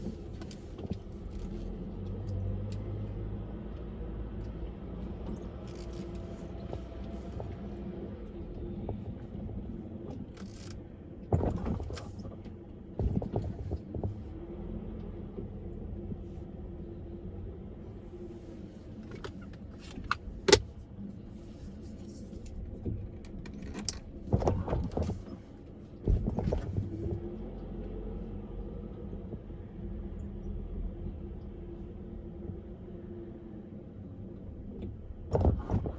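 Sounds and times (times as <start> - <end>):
car road and engine hum: 0.0 - 35.9.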